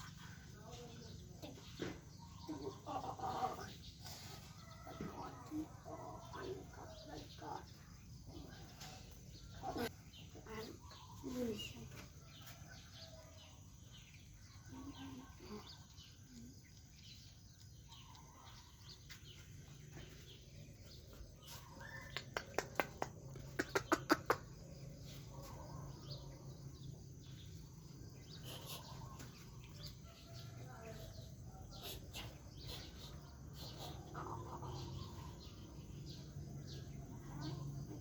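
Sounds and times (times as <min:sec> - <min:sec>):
bird calls: 0:13.9 - 0:38.0.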